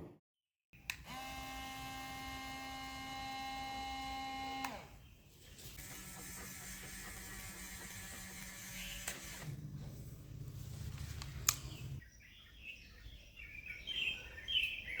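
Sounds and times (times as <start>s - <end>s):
small electric motor humming: 1.0s - 5.0s, 5.8s - 9.5s.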